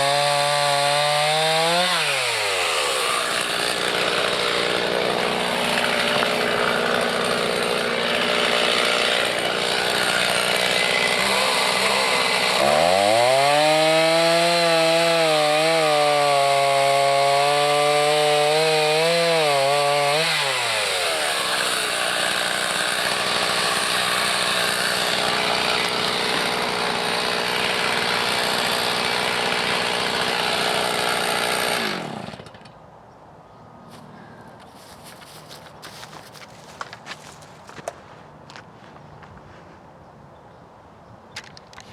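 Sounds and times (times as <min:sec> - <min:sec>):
chainsaw revving: 0:00.0 - 0:32.7.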